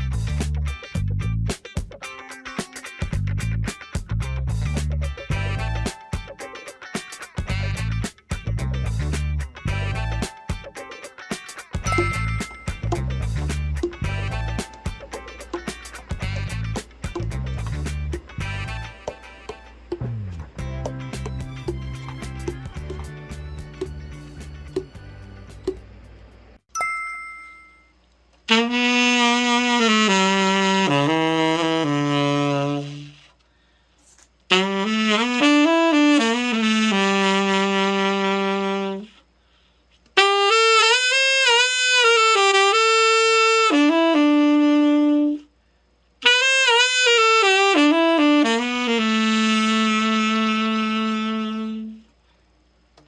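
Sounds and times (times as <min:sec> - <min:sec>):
tenor saxophone melody: 0:05.3 - 0:06.4, 0:09.7 - 0:10.6, 0:14.0 - 0:15.1, 0:16.2 - 0:16.8, 0:18.4 - 0:20.2, 0:28.5 - 0:33.3, 0:34.5 - 0:39.2, 0:40.2 - 0:45.5, 0:46.2 - 0:52.1.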